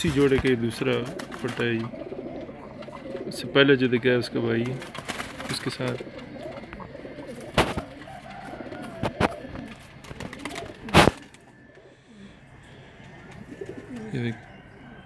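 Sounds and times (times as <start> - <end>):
pigeons cooing: 0.0 - 15.0
sharp thumps: 6.1 - 8.0.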